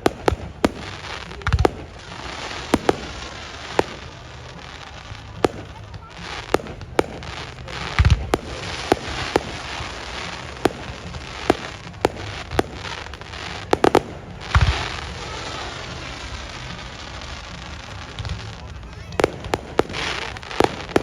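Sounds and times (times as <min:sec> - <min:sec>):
deep fireworks booms: 0:00.0 - 0:21.0
fireworks sharp bangs: 0:00.0 - 0:21.0
steady hiss: 0:00.0 - 0:21.0.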